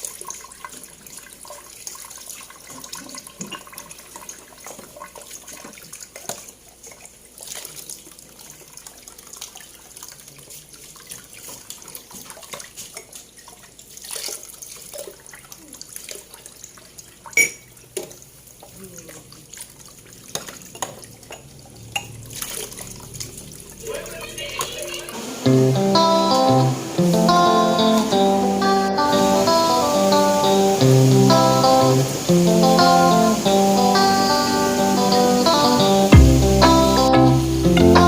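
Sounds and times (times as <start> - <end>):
tap water running into sink: 19.6 - 36.0.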